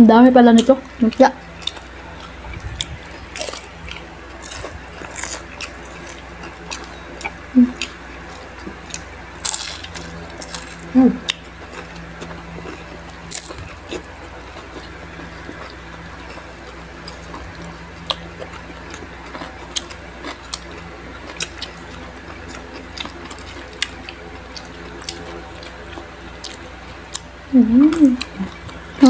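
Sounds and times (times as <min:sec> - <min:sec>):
steady low hum: 0:00.0 - 0:29.0
crunchy chewing: 0:00.5 - 0:29.0.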